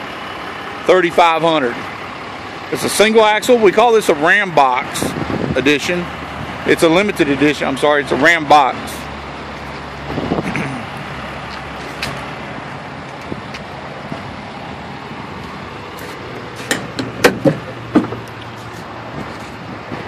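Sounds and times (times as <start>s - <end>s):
outdoor traffic noise: 0.0s - 20.0s
truck latch and lid clicking: 16.4s - 18.5s.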